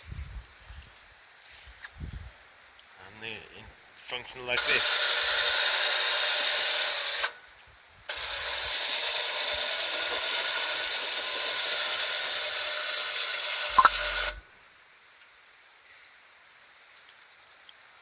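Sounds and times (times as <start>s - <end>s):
electric winch motor whirring: 4.6s - 7.5s, 8.1s - 14.4s.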